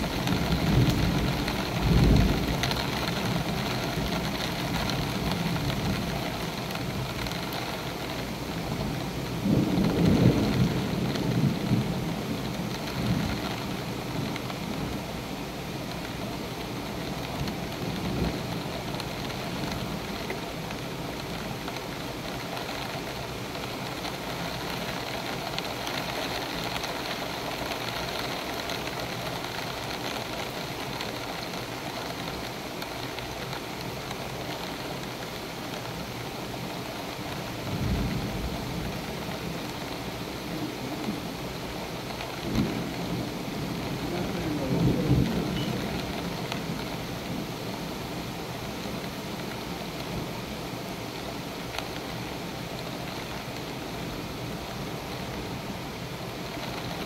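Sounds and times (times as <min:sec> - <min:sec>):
thunder rumble: 0:00.0 - 0:15.0, 0:42.3 - 0:47.6
heavy rain pouring: 0:00.0 - 0:57.0.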